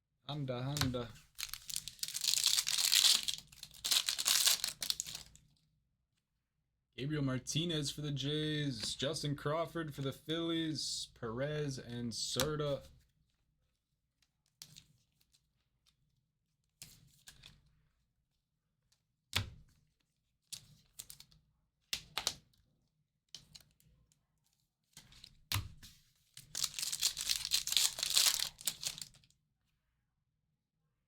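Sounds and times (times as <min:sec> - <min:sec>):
cards rustling and clicking: 0:00.7 - 0:05.4, 0:26.4 - 0:29.3
foil pack tearing and crinkling: 0:01.4 - 0:05.3, 0:26.5 - 0:29.2.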